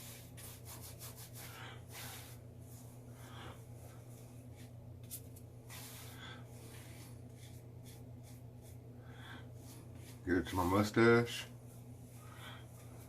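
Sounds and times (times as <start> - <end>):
hands rubbing through beard: 0.0 - 3.0
steady low hum: 0.0 - 13.0.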